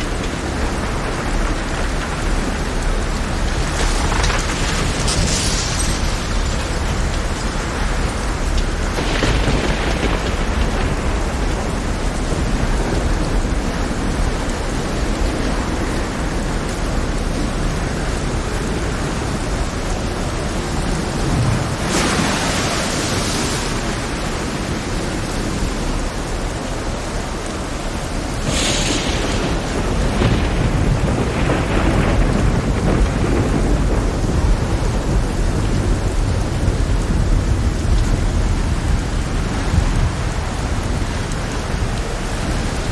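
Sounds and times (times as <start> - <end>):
deep thunder rumble: 0.0 - 42.9
heavy rain downpour: 0.0 - 42.9.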